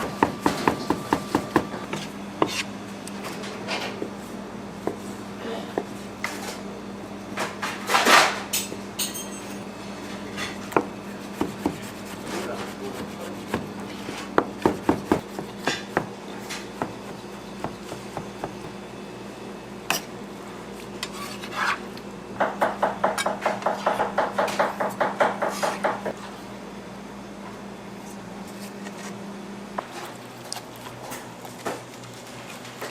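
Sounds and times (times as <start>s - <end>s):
steady low hum: 0.0s - 32.9s
dishes and utensils clattering: 7.6s - 9.6s.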